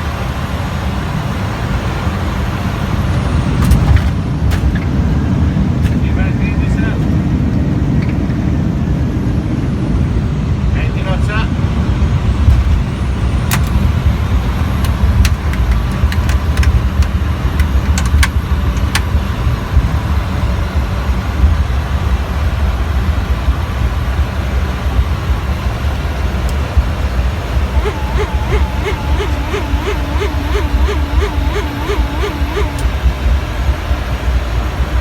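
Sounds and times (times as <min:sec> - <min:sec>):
engines and wheels rumbling: 0:00.0 - 0:35.0
clicks and rattles: 0:14.8 - 0:19.1
faint wavering tone: 0:27.5 - 0:33.7.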